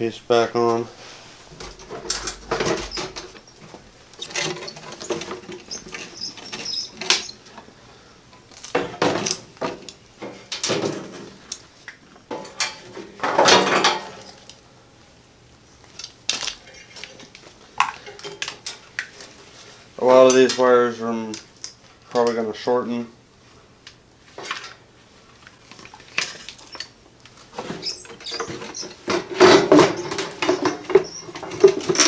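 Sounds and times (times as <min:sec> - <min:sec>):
metal clattering: 0:01.5 - 0:07.3
metal parts clanking and rattling: 0:01.6 - 0:07.4, 0:12.3 - 0:14.3, 0:27.6 - 0:32.0.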